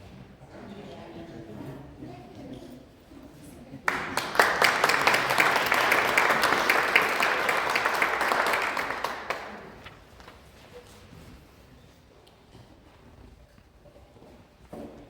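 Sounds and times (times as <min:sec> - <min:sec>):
audience applauding: 0:03.9 - 0:10.1.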